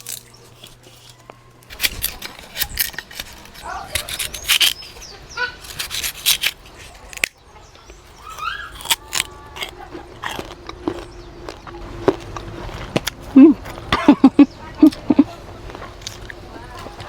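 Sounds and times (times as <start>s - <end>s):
birds chirping: 3.1s - 17.0s
sharp clicks and snaps: 5.7s - 7.4s.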